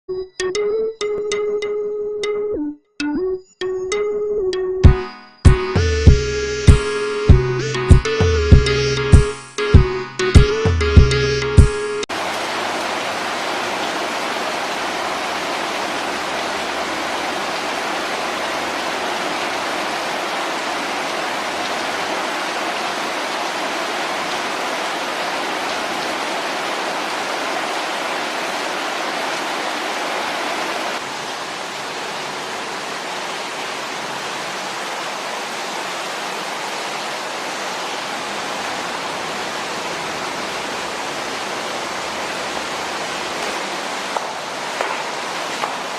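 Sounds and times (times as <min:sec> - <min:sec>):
heavy rain pouring: 0:10.5 - 0:45.9.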